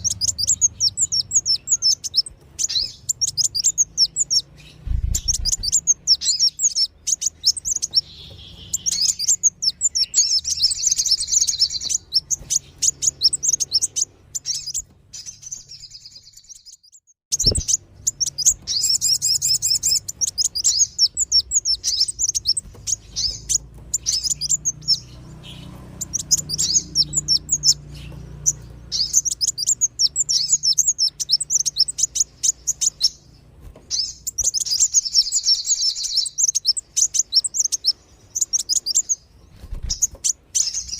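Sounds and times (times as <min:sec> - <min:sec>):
birds twittering chirps: 0:00.0 - 0:40.9.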